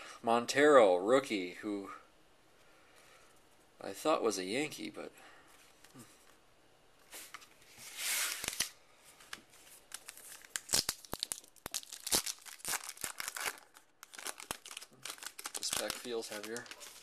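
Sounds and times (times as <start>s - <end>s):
wrapper tearing open: 8.3s - 8.8s, 9.9s - 17.0s
wrapper crinkling: 8.3s - 17.0s.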